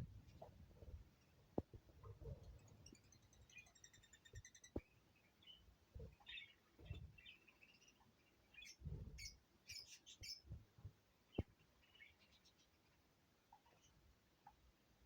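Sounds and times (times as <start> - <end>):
parrot chirps and squeaks: 2.6 - 4.8, 8.6 - 10.4.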